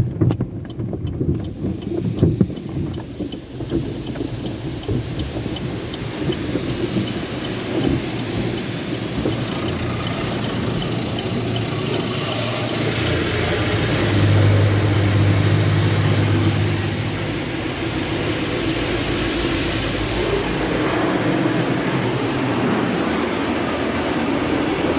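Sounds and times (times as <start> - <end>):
car wash machinery humming: 0.0 - 24.9
rushing water: 1.4 - 24.9.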